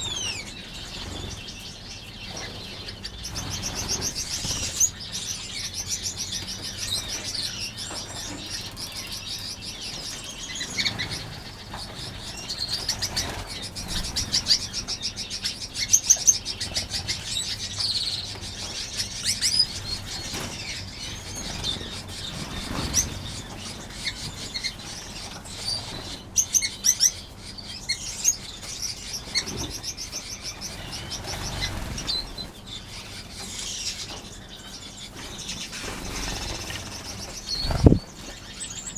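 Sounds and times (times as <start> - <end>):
finches chirping: 0.0 - 38.9
bird wingbeats: 3.3 - 5.0, 36.0 - 38.3.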